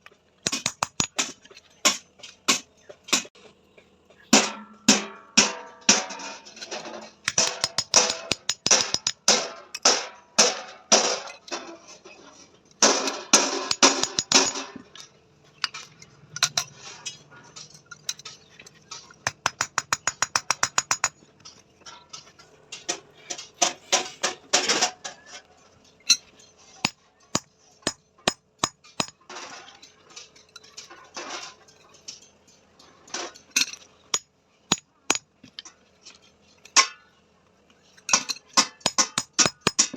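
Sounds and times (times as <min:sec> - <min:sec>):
hammer striking steel: 0:07.3 - 0:10.7, 0:12.9 - 0:14.6, 0:26.8 - 0:29.2, 0:38.2 - 0:39.9.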